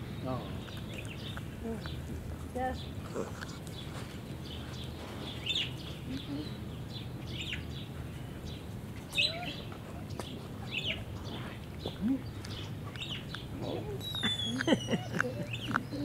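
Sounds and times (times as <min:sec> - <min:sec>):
small birds chirping: 0:00.0 - 0:16.0
puppy gnawing a stick: 0:00.6 - 0:06.3, 0:09.0 - 0:16.0.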